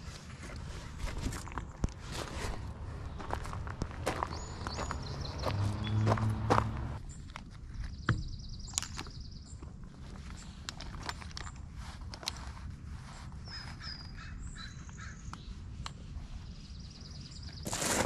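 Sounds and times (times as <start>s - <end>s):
high bird chirps: 4.1s - 6.7s.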